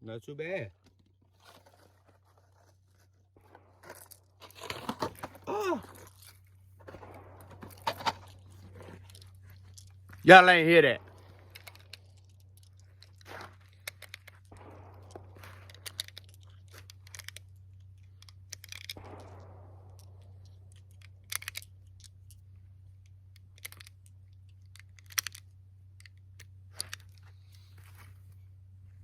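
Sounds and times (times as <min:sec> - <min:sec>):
hands handling gear clicks and taps: 0:11.4 - 0:19.3, 0:20.7 - 0:22.4, 0:23.0 - 0:28.2.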